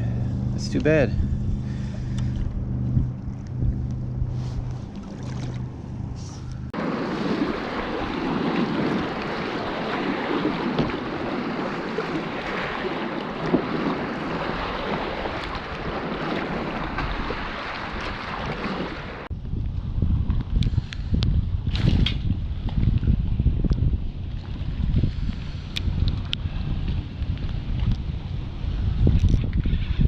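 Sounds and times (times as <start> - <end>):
low steady hum: 0.0 - 12.5
choppy lake waves splashing: 0.0 - 30.0
wind buffeting microphone: 0.0 - 30.0.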